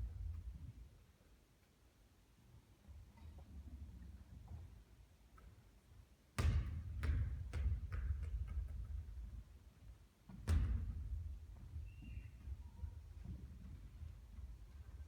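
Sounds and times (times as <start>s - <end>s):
basketball bouncing: 6.4s - 9.0s.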